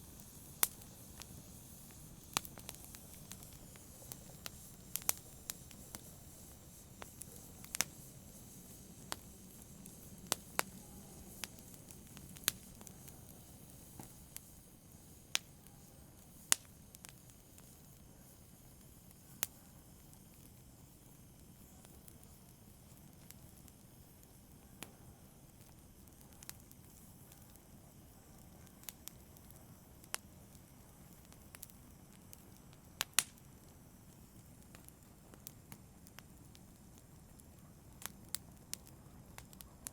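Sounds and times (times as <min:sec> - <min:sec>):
wood crackling and popping: 0:00.0 - 0:15.6, 0:16.2 - 0:24.9, 0:25.5 - 0:39.9
campfire hissing: 0:00.0 - 0:39.9.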